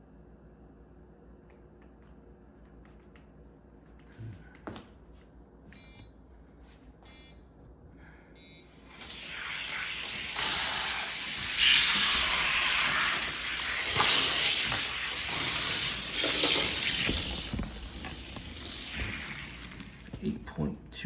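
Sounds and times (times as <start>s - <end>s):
toy cars rolling down plastic track: 8.9s - 20.2s.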